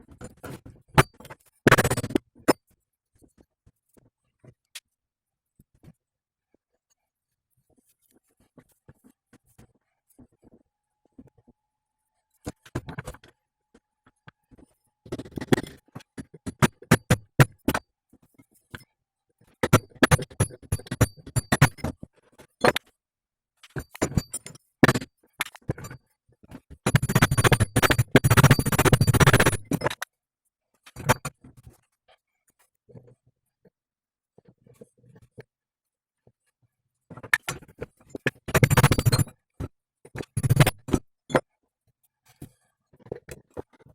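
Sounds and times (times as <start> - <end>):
metal clinking and knocking: 23.7 - 26.0, 37.3 - 41.0.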